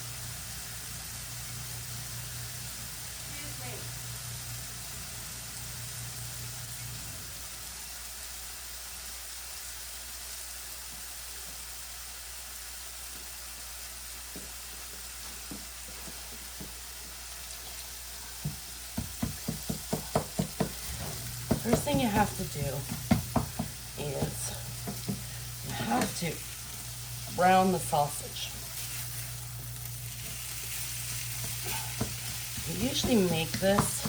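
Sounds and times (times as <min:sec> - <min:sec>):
sausage sizzling in a frying pan: 0:00.0 - 0:34.0
spatula tapping a pan: 0:18.4 - 0:26.2, 0:31.4 - 0:34.0.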